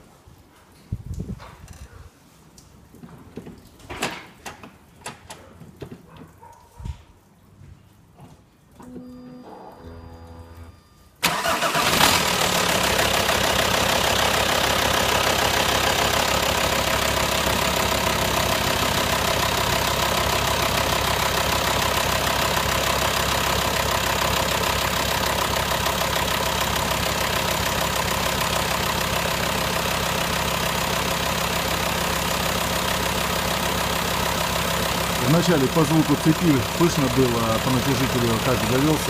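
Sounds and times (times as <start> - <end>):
diesel engine idling: 11.2 - 39.0.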